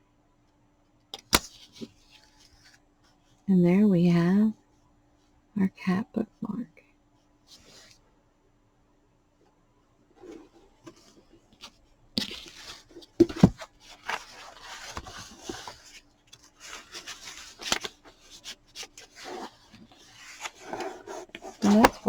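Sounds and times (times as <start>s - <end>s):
paper rustling: 10.2s - 22.0s.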